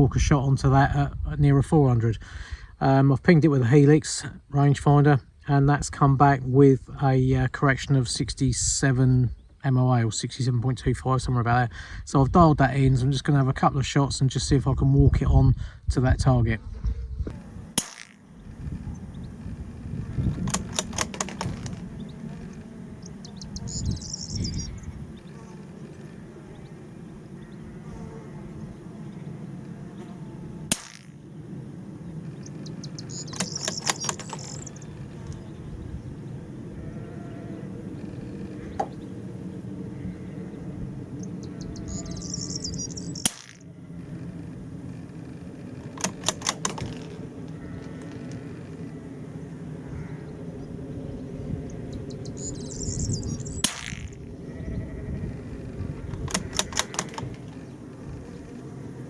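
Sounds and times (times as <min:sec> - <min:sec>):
low wind rumble: 0:00.0 - 0:59.0
rifle shot: 0:17.7 - 0:18.2, 0:30.7 - 0:31.2, 0:53.6 - 0:54.2
bird chirping: 0:18.4 - 0:43.4, 0:46.0 - 0:58.9
rifle bolt metallic clicks: 0:46.0 - 0:47.0, 0:56.3 - 0:57.2
rifle bolt clicks: 0:56.3 - 0:57.2.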